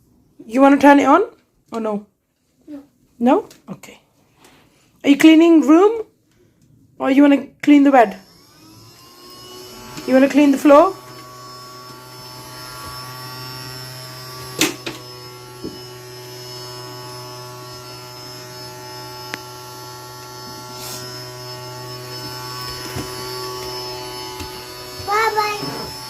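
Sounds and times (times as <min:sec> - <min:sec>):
vacuum cleaner motor humming: 0:08.2 - 0:26.0.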